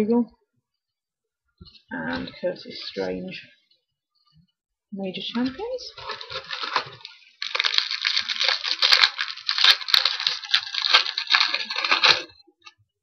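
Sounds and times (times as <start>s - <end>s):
wrapper crinkling and tearing: 5.3s - 12.4s.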